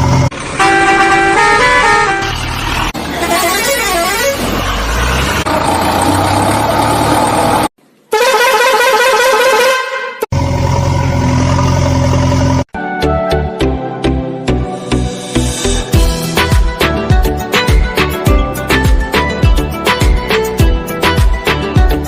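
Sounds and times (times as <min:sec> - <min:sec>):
musical vehicle horn tune: 0:00.6 - 0:02.4, 0:03.1 - 0:04.4, 0:08.1 - 0:10.3.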